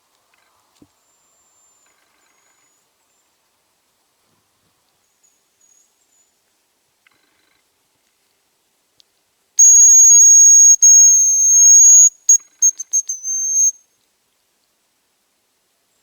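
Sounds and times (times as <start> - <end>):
decoy whistle: 9.6 - 13.8.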